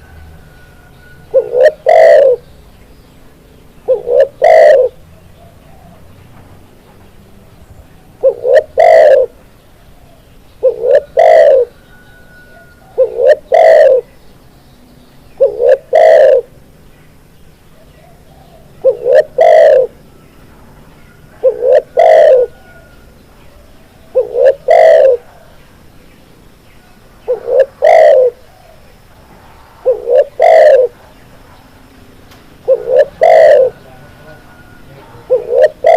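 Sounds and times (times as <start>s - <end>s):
dove cooing: 0.0s - 2.4s, 3.8s - 6.1s, 8.2s - 9.4s, 10.0s - 14.1s, 15.4s - 16.6s, 17.8s - 20.0s, 21.1s - 25.6s, 27.2s - 28.9s, 29.8s - 31.2s, 32.6s - 35.9s.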